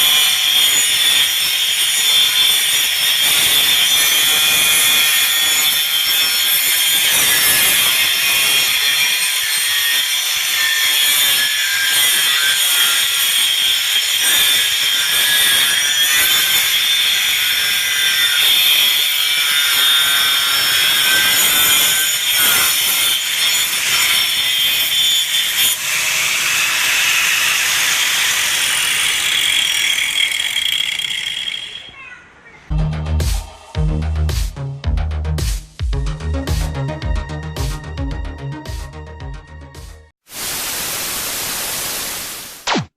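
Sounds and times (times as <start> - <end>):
angle grinder cutting: 0.0 - 31.9.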